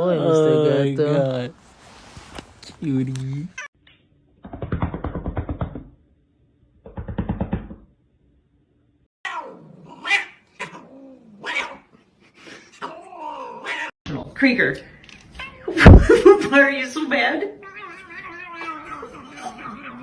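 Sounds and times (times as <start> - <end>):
cat meowing: 17.6 - 20.0.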